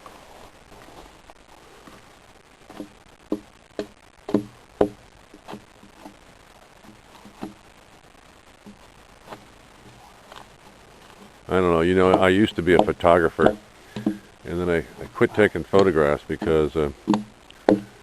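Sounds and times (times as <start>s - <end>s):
hand tool chopping log bark: 2.7s - 6.2s, 12.0s - 14.3s, 15.1s - 18.0s.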